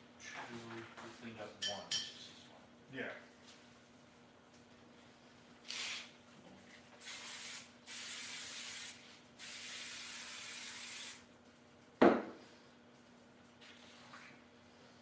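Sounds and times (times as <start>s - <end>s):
aerosol can spraying: 7.0s - 11.2s.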